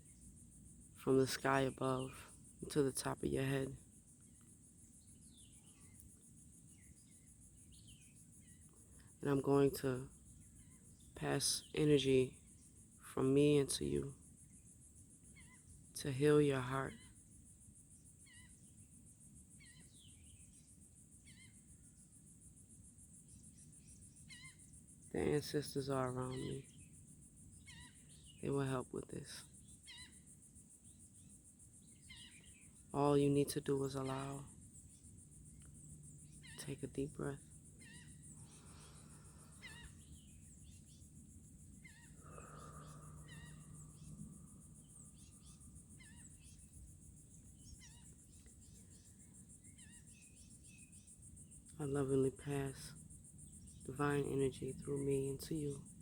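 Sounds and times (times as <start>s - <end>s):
insects trilling: 0.0s - 56.0s
warbling bird calls: 13.6s - 17.3s, 18.1s - 22.1s, 23.3s - 56.0s
bird warbling call: 27.6s - 28.5s, 36.4s - 41.0s, 41.8s - 46.7s.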